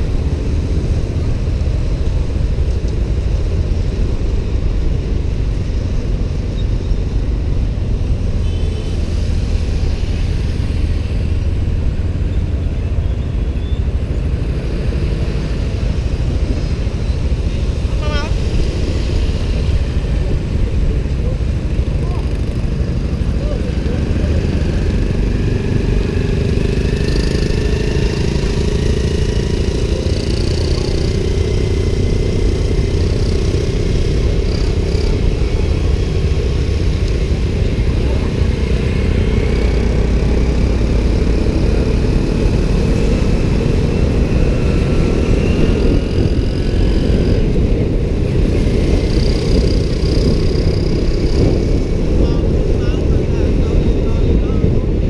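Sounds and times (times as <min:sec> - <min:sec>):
passing vehicles: 0:00.0 - 0:55.0
motorbike engine: 0:19.4 - 0:53.9.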